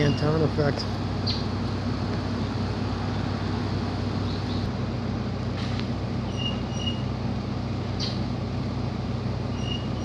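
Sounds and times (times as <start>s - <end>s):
heavy machinery drone: 0.0s - 10.0s.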